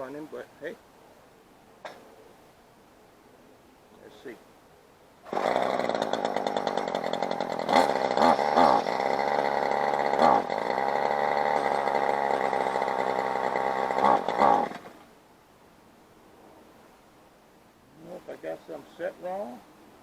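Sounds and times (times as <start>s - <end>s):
string trimmer engine revving: 5.2s - 15.1s.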